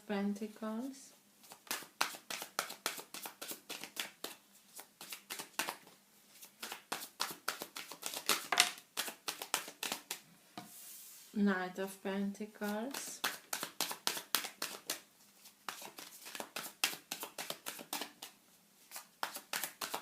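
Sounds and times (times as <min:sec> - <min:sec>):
cards clicking and slapping: 0:06.6 - 0:10.2, 0:15.7 - 0:20.0.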